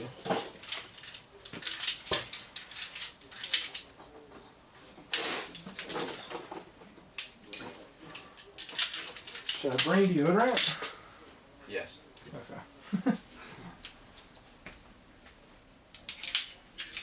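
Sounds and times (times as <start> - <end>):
metallic clinks and clatters: 0.0 - 3.9, 7.2 - 11.0, 13.8 - 14.5, 15.9 - 17.0.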